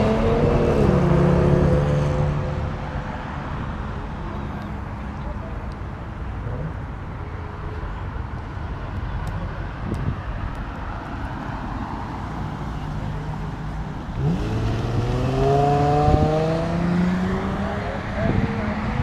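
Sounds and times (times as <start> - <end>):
car accelerating hard: 0.0 - 2.8, 14.0 - 19.0
car engines rumbling: 0.0 - 19.0.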